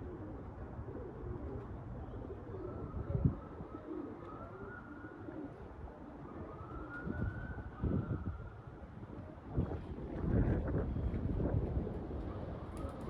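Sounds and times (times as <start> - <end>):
wind on microphone: 9.5 - 12.2.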